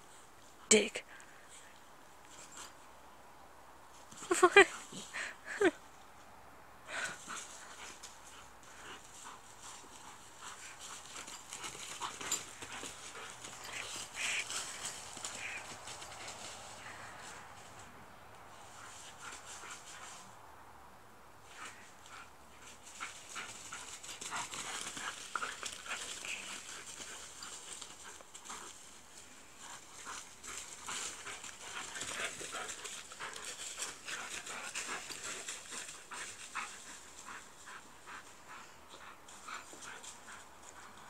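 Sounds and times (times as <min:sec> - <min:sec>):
dog panting: 0:06.9 - 0:17.8, 0:21.5 - 0:41.0.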